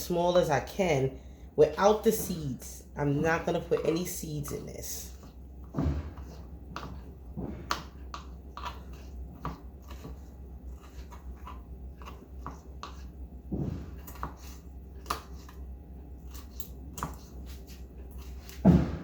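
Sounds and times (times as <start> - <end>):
knife chopping on cutting board: 3.8 - 15.6, 18.4 - 19.0.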